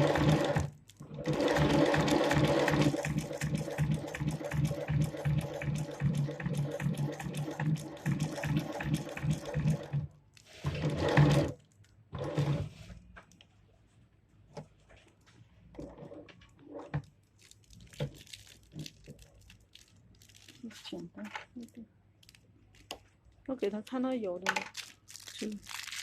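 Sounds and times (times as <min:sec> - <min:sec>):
sewing machine stitching: 0:00.0 - 0:12.8.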